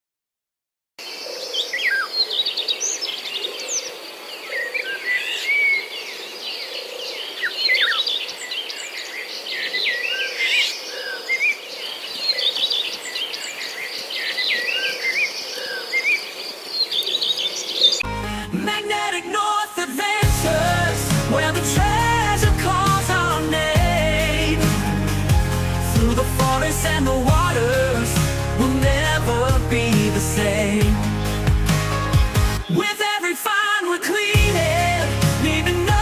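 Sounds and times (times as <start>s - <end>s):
songbirds singing: 1.0s - 18.1s, 20.2s - 33.2s
music: 18.0s - 33.4s, 34.2s - 36.0s.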